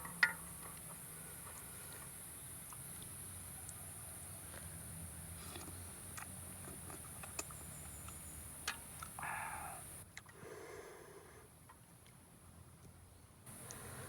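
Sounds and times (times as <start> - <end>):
high-pitched insect chorus: 7.9 - 10.0.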